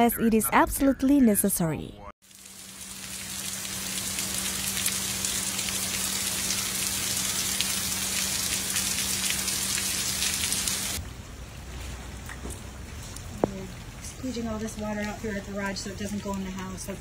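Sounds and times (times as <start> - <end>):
heavy rain pouring: 2.3 - 16.2.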